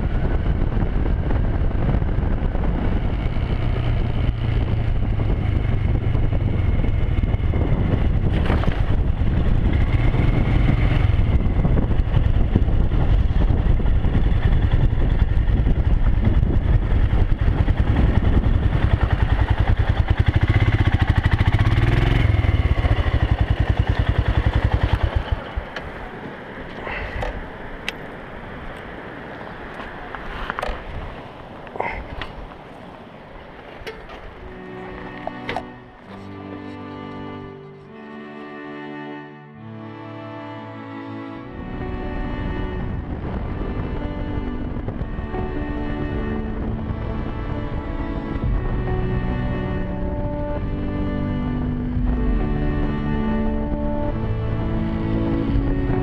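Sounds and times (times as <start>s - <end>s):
motorcycle engine running: 0.0s - 26.2s, 41.8s - 56.0s
wind and road noise: 0.0s - 56.0s.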